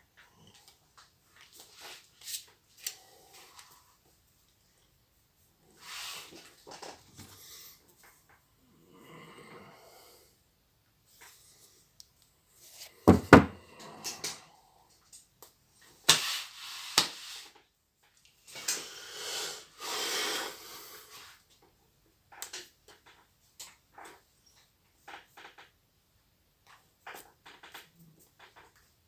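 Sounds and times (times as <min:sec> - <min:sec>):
heavy thuds: 0:13.1 - 0:13.6.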